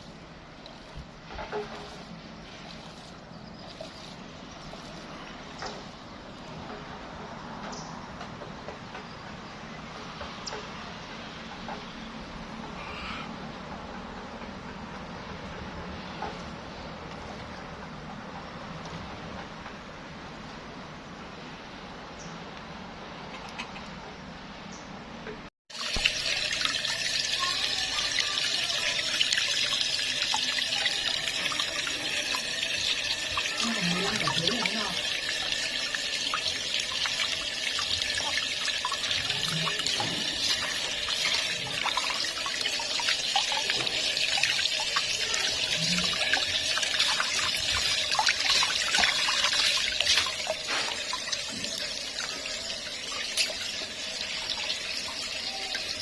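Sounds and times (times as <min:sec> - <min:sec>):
running water: 0:00.0 - 0:12.1, 0:25.7 - 0:56.0.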